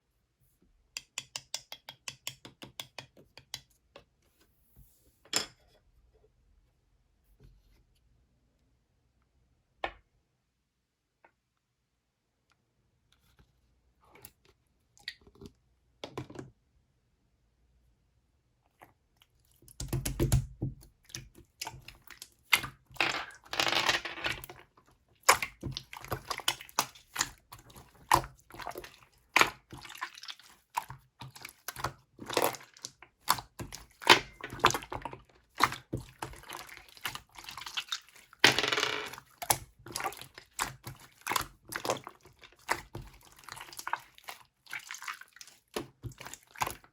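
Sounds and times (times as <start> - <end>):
slime squelching and popping: 25.2 - 38.4, 39.1 - 46.9.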